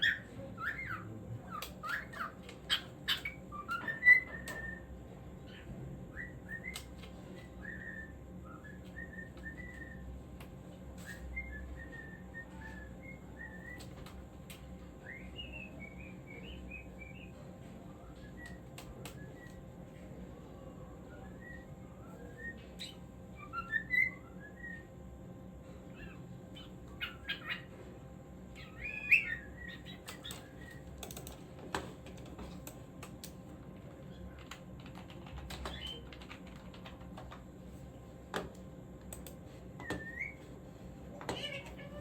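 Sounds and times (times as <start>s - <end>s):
cockatiel chirping and whistling: 0.0s - 4.9s, 5.5s - 6.9s, 7.6s - 10.0s, 11.0s - 13.9s, 21.1s - 24.9s, 26.0s - 27.7s, 28.6s - 30.8s, 39.8s - 40.5s.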